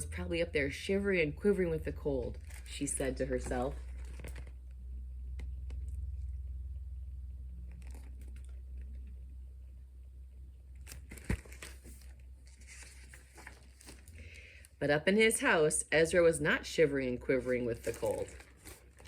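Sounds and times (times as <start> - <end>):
low steady hum: 0.0 - 19.0
paper pages rustling: 2.4 - 4.6, 7.7 - 9.1, 10.8 - 14.4, 17.3 - 19.0.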